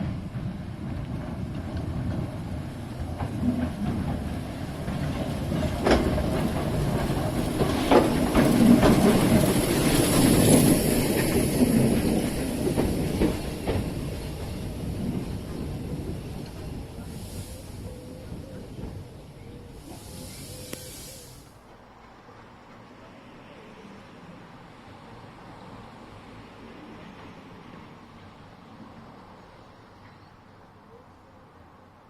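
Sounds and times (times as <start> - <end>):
wheels clicking over rail joints: 0.0 - 23.1
train passing: 0.0 - 32.0.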